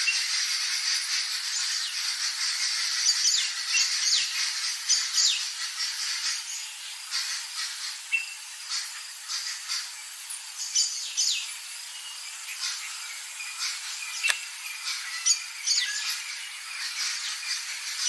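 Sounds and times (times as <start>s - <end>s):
bird calls: 0.0s - 18.0s
insect buzz and chirring: 0.0s - 18.0s.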